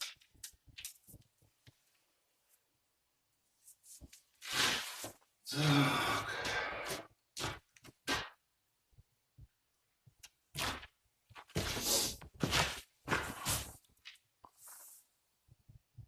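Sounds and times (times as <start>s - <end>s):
man sighing: 5.5s - 7.0s.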